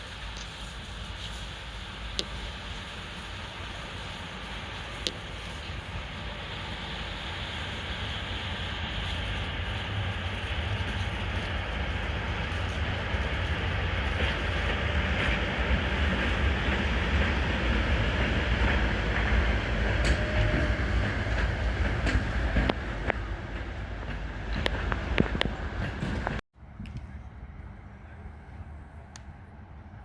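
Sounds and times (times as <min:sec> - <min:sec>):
freight train wagons rumbling: 0:00.0 - 0:26.4
train wheels clicking and knocking: 0:09.4 - 0:26.4.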